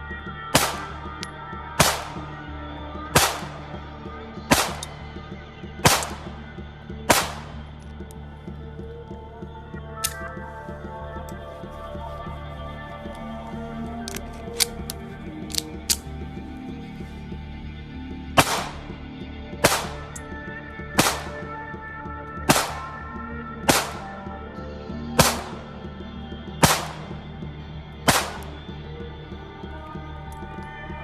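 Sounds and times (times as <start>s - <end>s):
pistol shots with echo: 0.6s - 1.0s, 1.8s - 2.3s, 3.2s - 3.6s, 4.5s - 5.0s, 5.8s - 6.3s, 7.1s - 7.6s, 18.4s - 18.9s, 19.6s - 20.2s, 21.0s - 21.5s, 22.5s - 22.9s, 23.7s - 24.2s, 25.2s - 25.6s, 26.6s - 27.2s, 28.1s - 28.6s.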